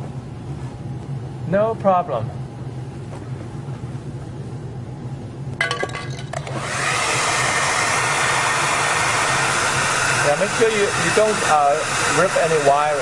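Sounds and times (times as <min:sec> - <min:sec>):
hair dryer blowing with whine: 0:06.4 - 0:13.0.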